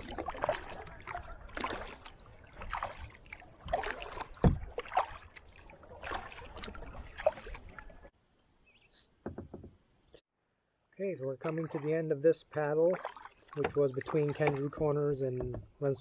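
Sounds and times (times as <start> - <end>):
paddle splashing in water: 0.0 - 8.1, 11.4 - 15.7
low thump: 4.4 - 4.7.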